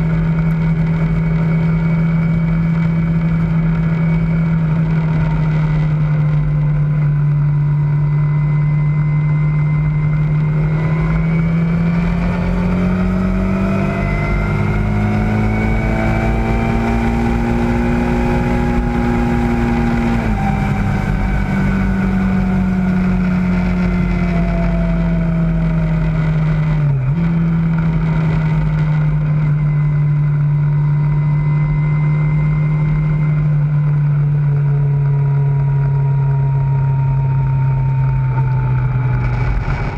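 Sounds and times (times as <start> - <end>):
motorcycle engine running: 0.0 - 39.9
wind rush: 38.5 - 39.9.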